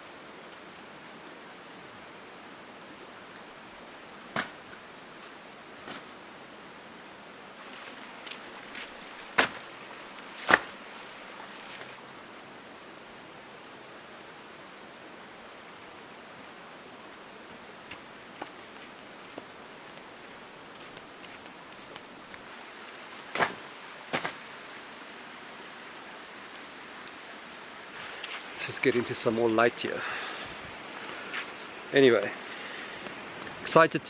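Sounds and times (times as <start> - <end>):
light rain hissing: 0.0 - 33.9.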